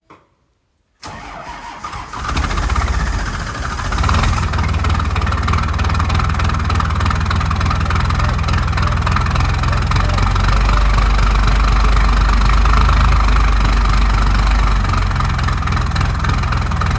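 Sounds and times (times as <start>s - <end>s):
starter cranking: 1.0s - 6.4s
diesel engine clattering: 1.1s - 16.9s.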